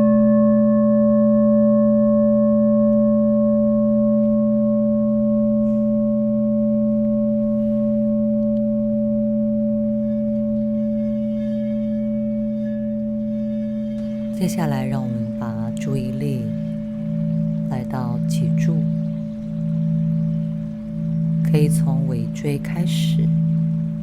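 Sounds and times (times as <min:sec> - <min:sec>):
low steady hum: 0:00.0 - 0:24.0
singing bowl ringing: 0:00.0 - 0:24.0.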